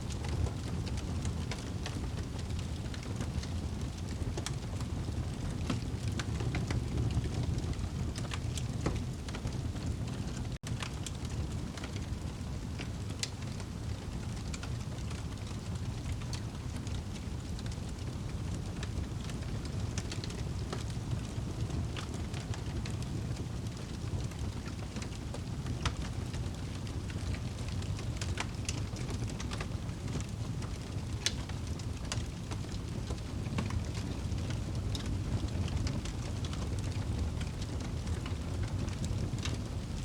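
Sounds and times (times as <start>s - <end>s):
fire crackles and pops: 0.0s - 40.0s
fire flames rumbling: 0.0s - 40.0s.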